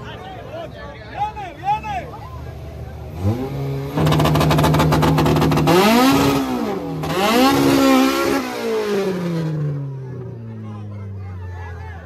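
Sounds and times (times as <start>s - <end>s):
car engine revving: 2.4s - 10.4s.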